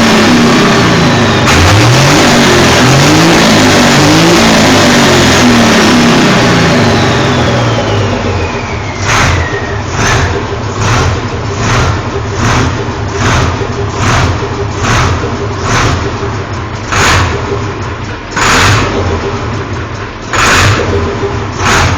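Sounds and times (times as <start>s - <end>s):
diesel engine throttle blips: 0.0s - 21.9s
turbo whistle: 7.5s - 10.6s.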